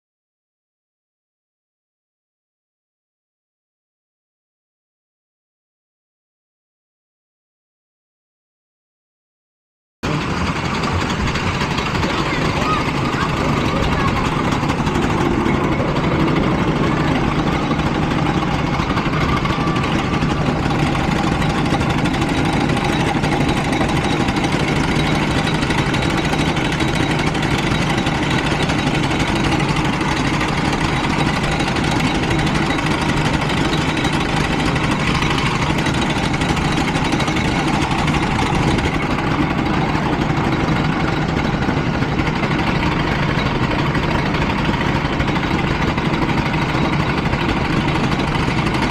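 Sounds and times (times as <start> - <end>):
go-kart engine running: 10.0 - 48.9.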